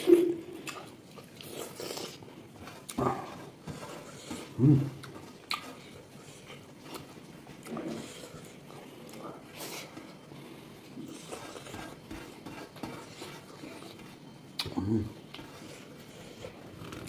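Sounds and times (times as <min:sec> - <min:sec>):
person chewing and biting: 0:04.0 - 0:08.5
eating clicks and smacks: 0:05.0 - 0:05.8.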